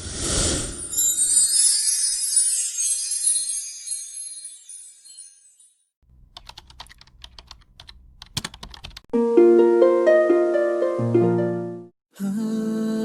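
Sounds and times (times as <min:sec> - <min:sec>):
computer keyboard typing: 0:06.1 - 0:09.1.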